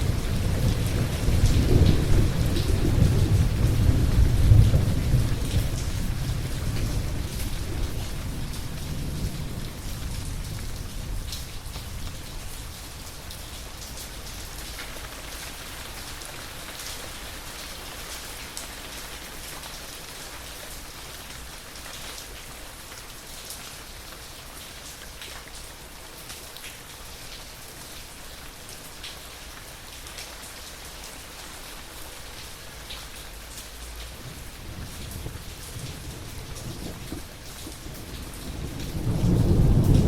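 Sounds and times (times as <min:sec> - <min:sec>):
thunder rumble: 0:00.0 - 0:12.7, 0:34.1 - 0:40.0
steady rain falling: 0:00.0 - 0:40.0.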